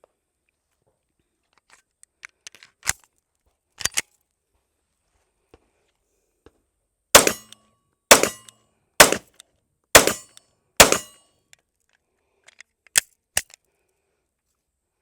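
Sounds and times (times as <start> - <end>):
pistol shots echoing: 7.2 - 9.2, 10.0 - 11.2.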